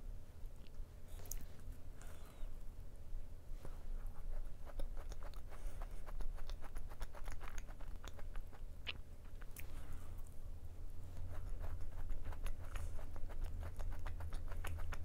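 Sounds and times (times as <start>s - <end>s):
person chewing crisp macaron: 0.4s - 2.2s, 6.1s - 10.4s.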